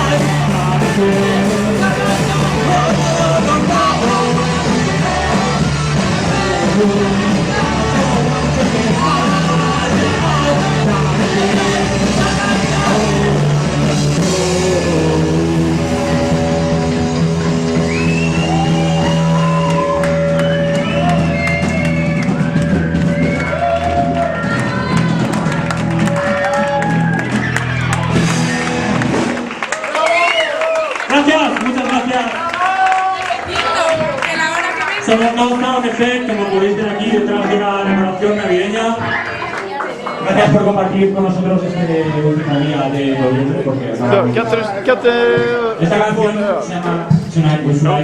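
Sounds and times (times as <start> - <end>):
person singing: 0.0 - 17.9
live rock band playing: 0.0 - 29.7.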